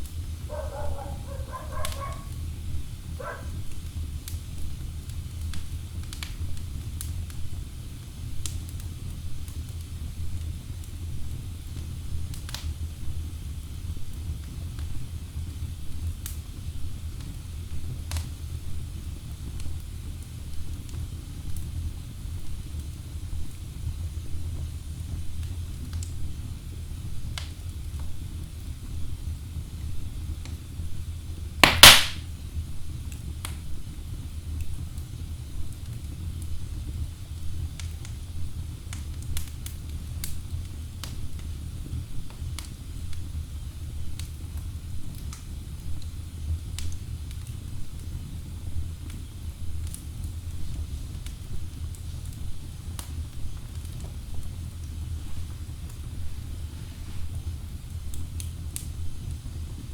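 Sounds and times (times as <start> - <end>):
faint fire crackles: 0.0 - 59.9
fire flames rumbling: 0.0 - 59.9
loud log pop: 31.6 - 32.3.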